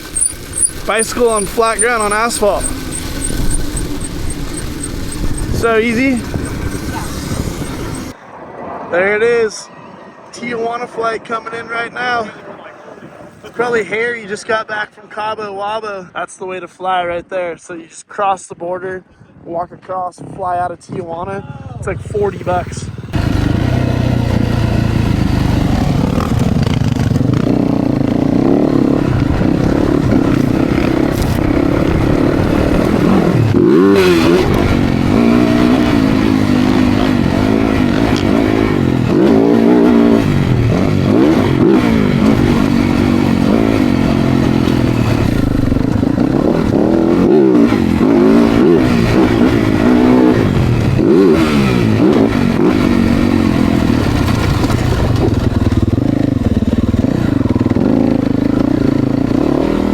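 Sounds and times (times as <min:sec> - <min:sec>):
dirt bike engines revving: 0:00.0 - 0:08.2, 0:21.4 - 0:59.9.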